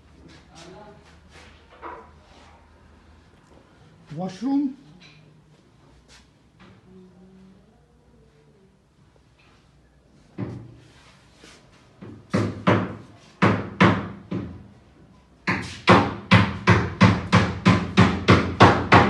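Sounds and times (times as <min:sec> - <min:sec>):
hammer blows echoing: 0:15.5 - 0:19.0.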